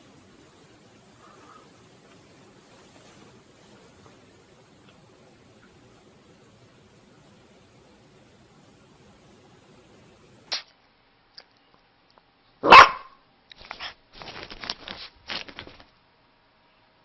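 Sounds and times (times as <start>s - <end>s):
dog barking: 12.6s - 13.2s.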